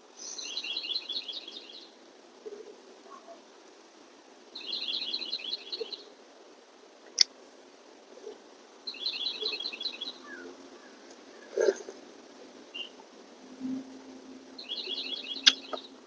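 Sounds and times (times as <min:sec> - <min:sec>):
songbird trilling: 0:00.2 - 0:01.9, 0:04.6 - 0:06.1, 0:08.9 - 0:11.7, 0:12.7 - 0:13.0, 0:14.6 - 0:16.0.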